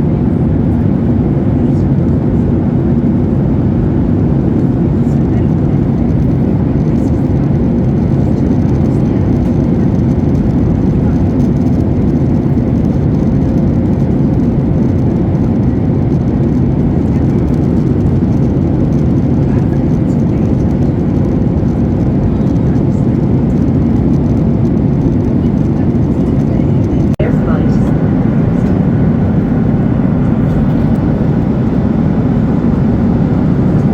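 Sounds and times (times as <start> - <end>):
airliner cabin engine noise: 0.0 - 33.9
faint steady hum: 26.2 - 33.9.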